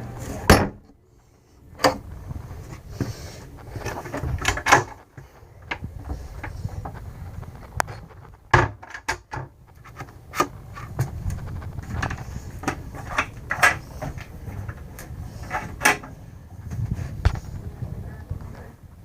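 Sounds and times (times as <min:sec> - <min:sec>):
cabinet doors and drawers knocking: 0:00.4 - 0:00.8, 0:08.5 - 0:09.6
low rumble: 0:01.3 - 0:08.6, 0:09.6 - 0:19.0.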